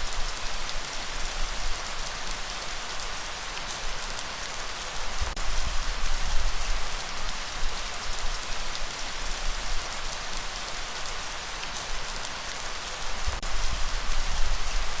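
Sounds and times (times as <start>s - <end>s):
individual raindrops: 0.0s - 15.0s
rain hissing: 0.0s - 15.0s.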